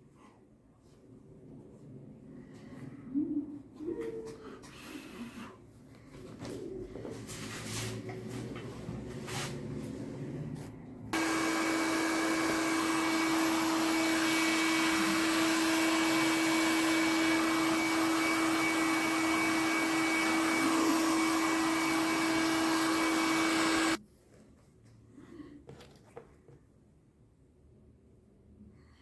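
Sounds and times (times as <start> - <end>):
electric machine humming: 11.2 - 24.0.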